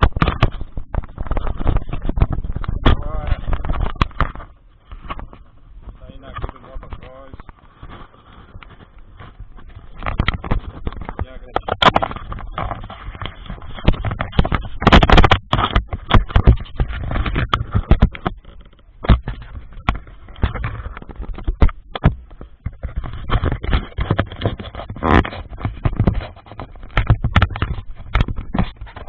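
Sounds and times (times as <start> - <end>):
wind buffeting microphone: 0.0 - 7.6
knocks and rattles: 0.0 - 29.0.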